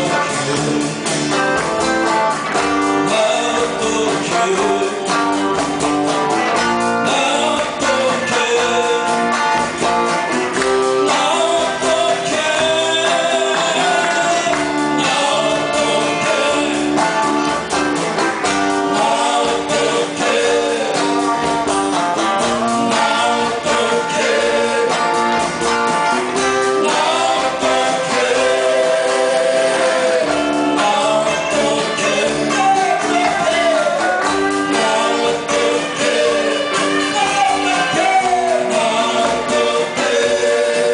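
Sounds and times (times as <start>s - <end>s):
live band playing pop song: 0.0s - 40.9s
person singing: 2.8s - 5.5s, 6.5s - 9.5s, 10.8s - 17.3s, 18.8s - 21.7s, 22.4s - 25.4s, 26.4s - 40.9s.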